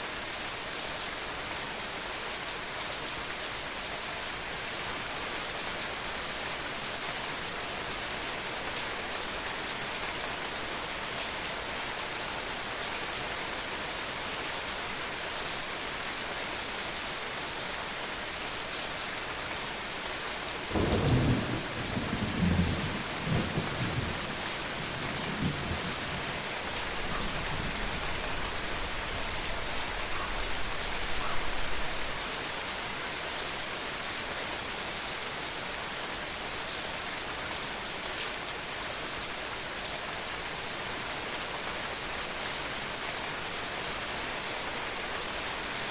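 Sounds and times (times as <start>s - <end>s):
rain falling: 0.0s - 45.9s
thunder rumbling: 20.7s - 24.2s.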